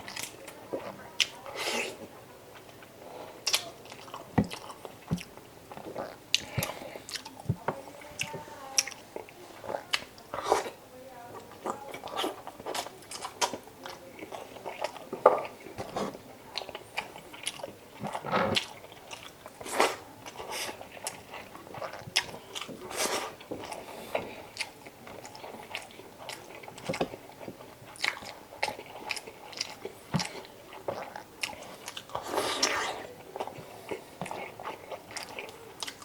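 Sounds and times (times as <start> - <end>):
person chewing with mouth smacks: 0.0 - 36.0
loud chewing crunches: 11.4 - 36.0.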